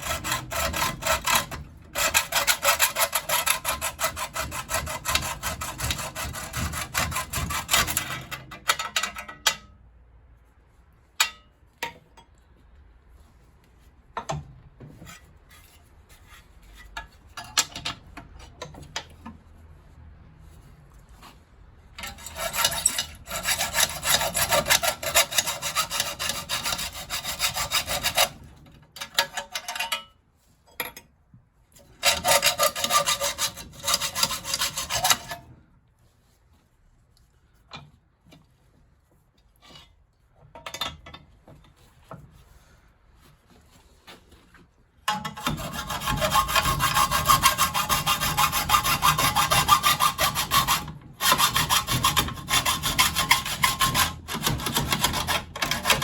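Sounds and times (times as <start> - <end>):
hacksaw rasping through metal: 0.0 - 9.7, 22.0 - 30.1, 31.8 - 35.5, 45.1 - 56.0.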